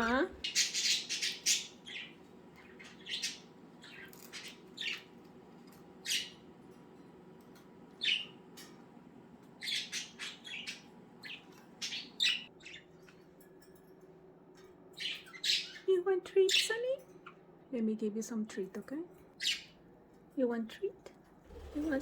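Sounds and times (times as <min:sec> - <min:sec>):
budgerigars chirping and squawking: 0:00.0 - 0:05.2, 0:06.0 - 0:06.4, 0:08.0 - 0:08.4, 0:09.6 - 0:13.2, 0:15.0 - 0:15.9, 0:19.4 - 0:19.8.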